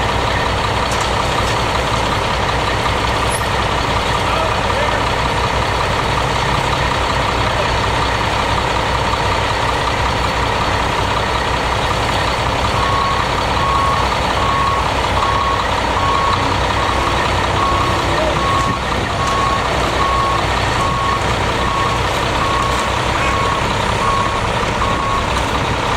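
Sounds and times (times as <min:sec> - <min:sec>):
truck engine running: 0:00.0 - 0:25.9
reversing alarm beeping: 0:12.8 - 0:25.9.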